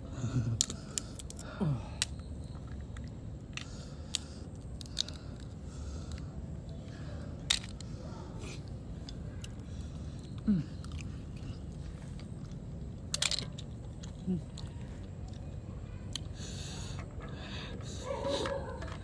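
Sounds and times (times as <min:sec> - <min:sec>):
person chewing with crunches: 0:09.4 - 0:15.5.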